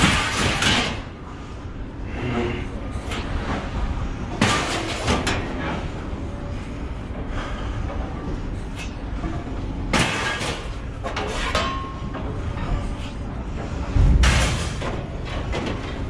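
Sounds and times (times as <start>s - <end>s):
scrap metal clanking and rattling: 0.0s - 1.2s, 4.3s - 6.1s, 8.5s - 16.0s
loud bang with low thump: 14.0s - 14.8s.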